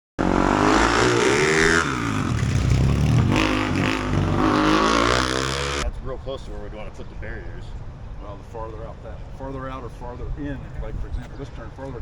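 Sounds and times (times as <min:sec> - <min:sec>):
motorcycle engine revving: 0:00.2 - 0:05.8.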